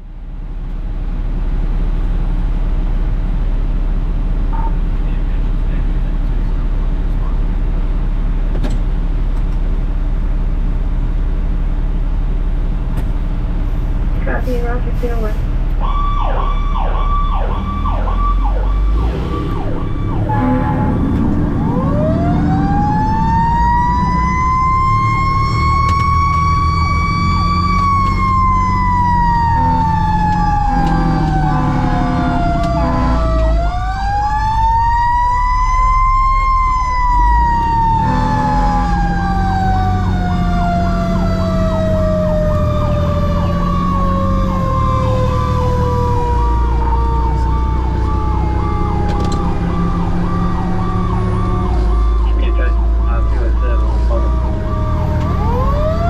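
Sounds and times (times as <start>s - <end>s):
diesel engine drone: 0.0s - 56.0s
electronic siren yelping: 15.8s - 56.0s
mechanical siren wailing: 15.8s - 56.0s.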